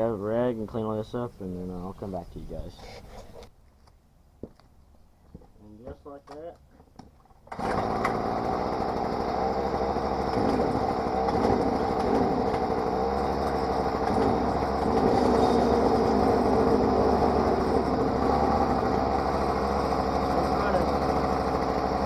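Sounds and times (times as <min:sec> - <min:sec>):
string trimmer engine running: 0:07.5 - 0:22.0.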